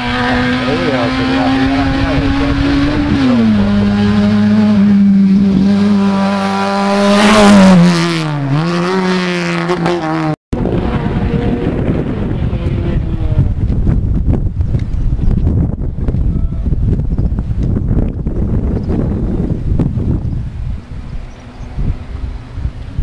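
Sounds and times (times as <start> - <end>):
rally car engine at high revs: 0.0 - 13.6
rough rushing noise: 0.0 - 23.0.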